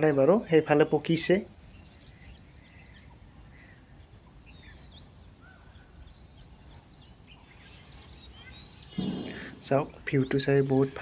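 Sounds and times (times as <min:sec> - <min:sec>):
birds calling and chirping: 0:00.0 - 0:11.0.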